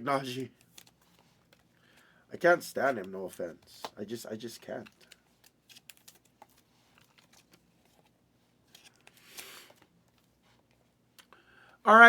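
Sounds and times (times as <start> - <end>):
packaging rustle: 0.4 - 2.1, 2.9 - 10.8
trading card packaging clicks: 0.5 - 2.0, 2.9 - 8.0.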